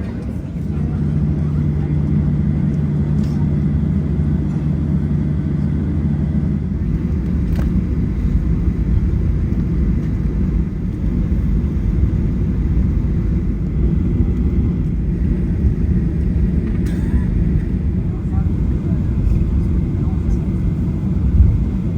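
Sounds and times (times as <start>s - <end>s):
aircraft cabin engine rumble: 0.0s - 21.9s
low hum: 0.0s - 21.9s.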